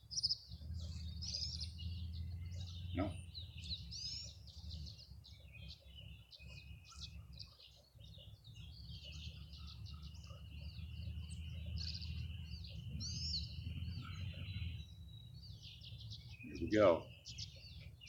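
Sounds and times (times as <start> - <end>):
swallows twittering: 0.0 - 18.0
low steady rumble: 0.3 - 6.0, 8.3 - 16.4.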